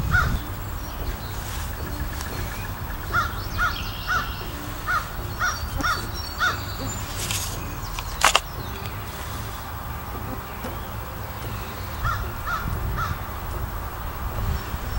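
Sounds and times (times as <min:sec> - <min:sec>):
bird calling: 0:00.0 - 0:14.9.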